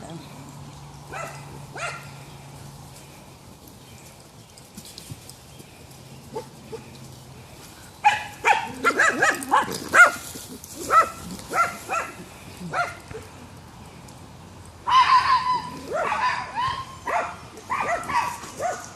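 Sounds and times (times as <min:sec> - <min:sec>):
dogs barking: 0:01.1 - 0:02.2, 0:06.2 - 0:07.0, 0:08.0 - 0:13.4, 0:14.8 - 0:18.9.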